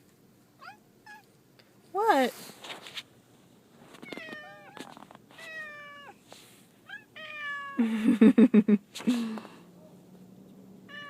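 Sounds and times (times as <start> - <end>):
cats meowing in distress: 4.0 - 6.2, 6.9 - 7.8.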